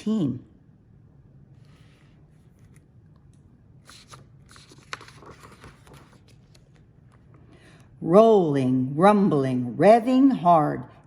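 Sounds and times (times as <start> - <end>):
paper rustling: 1.6 - 7.3.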